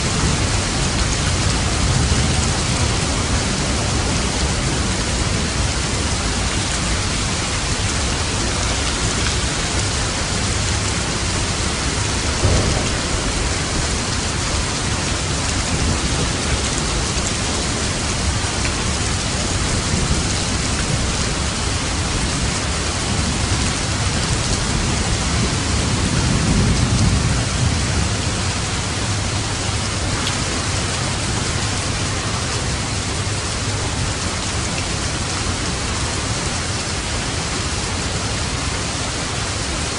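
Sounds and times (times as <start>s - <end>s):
steady rain falling: 0.0s - 39.9s
low rumble: 9.7s - 17.7s.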